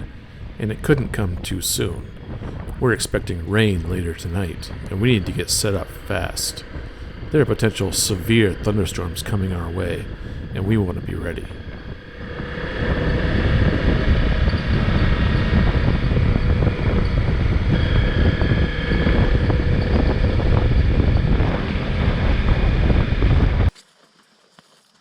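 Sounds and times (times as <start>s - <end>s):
wind buffeting on microphone: 0.0s - 23.7s
motorcycle engine running: 11.6s - 23.7s.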